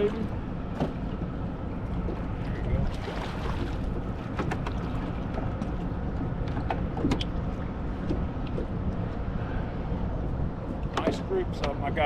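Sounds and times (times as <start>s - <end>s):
steady low rumble: 0.0s - 12.0s
fishing tackle clicks and knocks: 4.4s - 9.2s.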